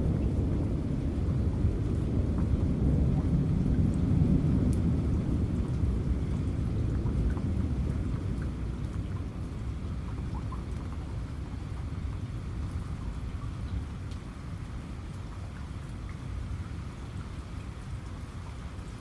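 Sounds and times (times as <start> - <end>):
low thunder rumble: 0.0 - 14.9
raindrops ticking: 0.0 - 19.0
steady rain: 0.0 - 19.0.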